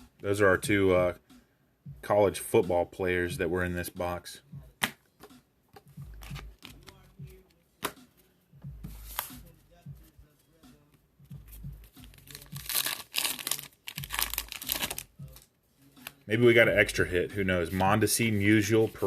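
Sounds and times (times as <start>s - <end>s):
foil wrapper tearing and crinkling: 12.1s - 15.1s.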